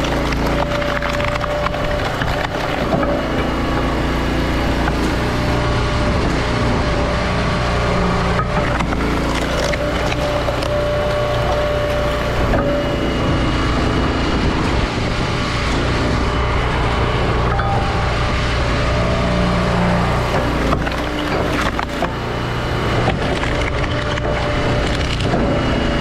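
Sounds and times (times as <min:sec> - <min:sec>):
wood cracking: 0:00.0 - 0:05.6, 0:08.4 - 0:13.0, 0:20.0 - 0:25.4
firewood splitter engine running: 0:00.0 - 0:26.0.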